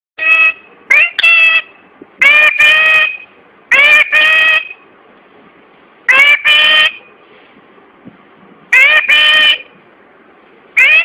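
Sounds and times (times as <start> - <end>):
parrot calling loudly: 0.2 - 4.8, 6.1 - 7.0, 8.7 - 9.8, 10.8 - 11.0.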